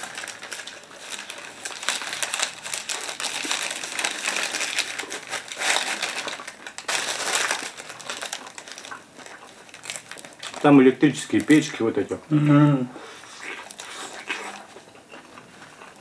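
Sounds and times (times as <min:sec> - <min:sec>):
paper wrapper crinkling: 0:00.0 - 0:12.0, 0:13.0 - 0:14.8
close chewing: 0:07.6 - 0:10.6, 0:13.0 - 0:16.0.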